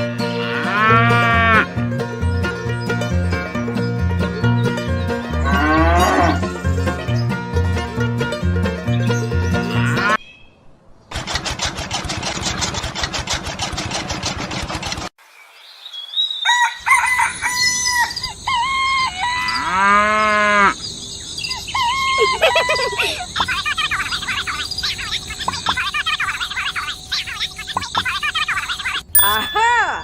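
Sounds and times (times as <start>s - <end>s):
steady rapid rattle: 11.1s - 15.1s
rooster crowing: 16.4s - 20.0s
chickens clucking: 21.9s - 29.1s.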